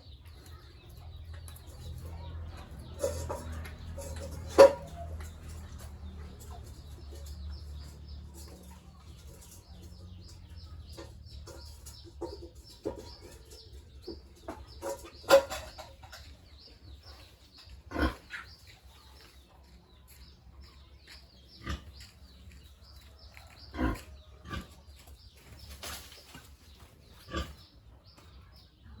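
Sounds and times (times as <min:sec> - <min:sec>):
pigs grunting: 0:17.7 - 0:18.7, 0:21.4 - 0:22.3, 0:23.6 - 0:25.0, 0:27.0 - 0:28.1.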